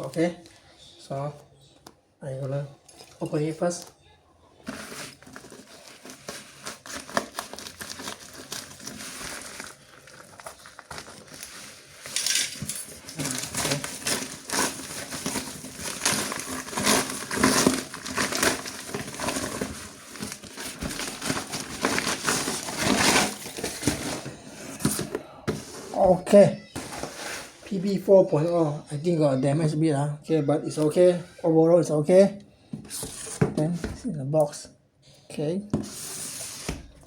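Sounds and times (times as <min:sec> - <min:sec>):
packaging crinkling and tearing: 0:04.6 - 0:25.1.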